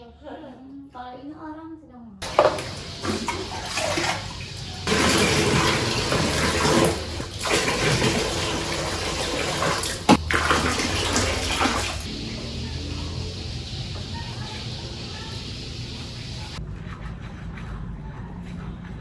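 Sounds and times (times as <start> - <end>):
tap water running: 2.2 - 16.6.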